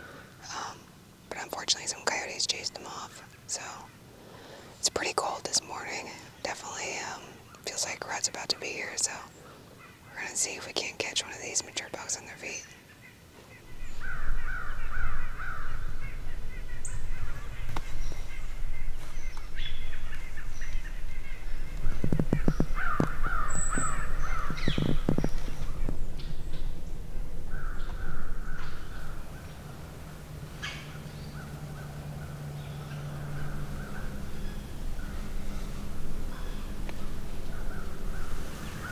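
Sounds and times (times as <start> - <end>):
steady low rumble: 13.5 - 38.9
crows cawing: 13.6 - 19.0, 19.7 - 24.8, 27.4 - 38.9.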